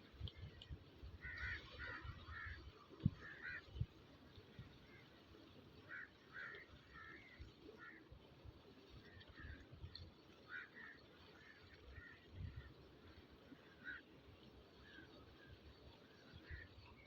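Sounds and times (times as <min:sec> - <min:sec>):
crows cawing: 0:01.2 - 0:02.6, 0:03.2 - 0:03.7, 0:05.9 - 0:08.0, 0:10.5 - 0:12.2.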